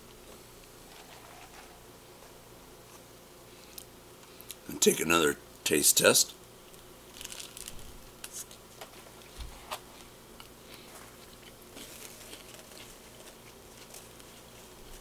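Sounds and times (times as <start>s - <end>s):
person chewing with mouth closed: 10.4s - 13.6s.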